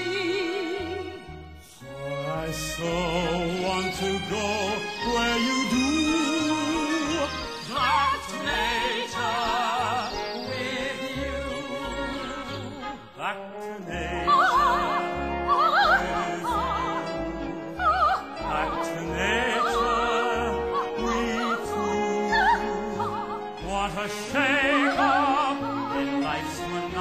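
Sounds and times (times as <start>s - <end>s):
operatic singing with vibrato: 0.0s - 27.0s
theatre orchestra: 0.0s - 27.0s.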